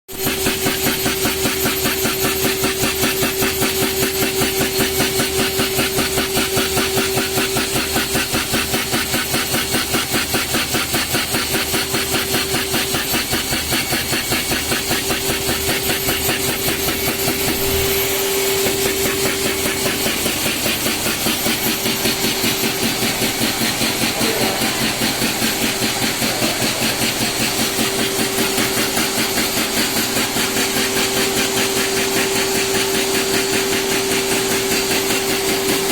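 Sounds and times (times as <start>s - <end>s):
rapid drilling strokes: 0.1s - 35.9s
spindle whine: 12.0s - 30.5s.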